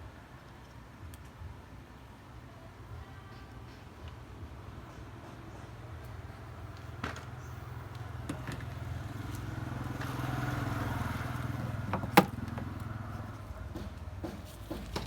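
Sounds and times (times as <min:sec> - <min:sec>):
vehicle engine hum: 0:04.1 - 0:15.0.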